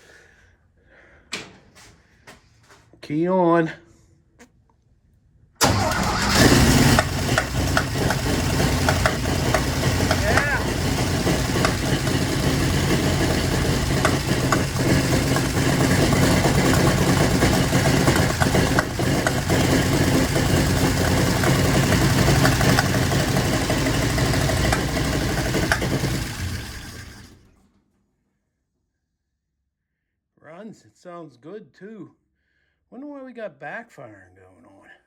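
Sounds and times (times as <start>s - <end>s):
engine backfires: 5.6s - 27.5s
engine running unevenly: 5.6s - 27.5s.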